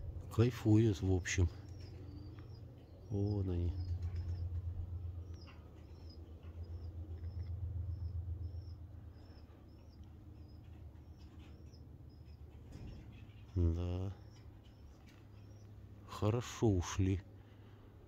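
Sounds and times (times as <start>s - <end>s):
low rumble: 0.0s - 14.4s
small bird chirping: 0.0s - 16.4s.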